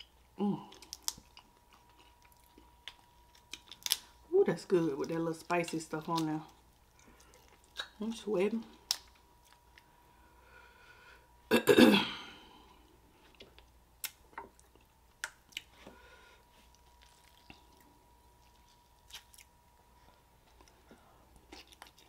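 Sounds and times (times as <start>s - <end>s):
soft chewing: 0.0s - 8.0s, 8.7s - 10.1s, 12.7s - 22.0s
lip smacks and mouth clicks: 13.4s - 15.7s.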